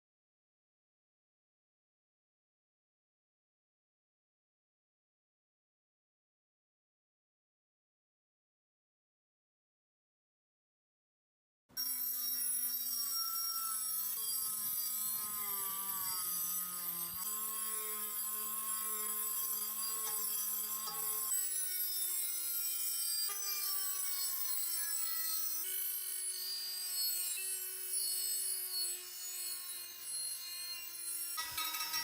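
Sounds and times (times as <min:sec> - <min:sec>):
power tool whining on metal: 0:11.8 - 0:32.0.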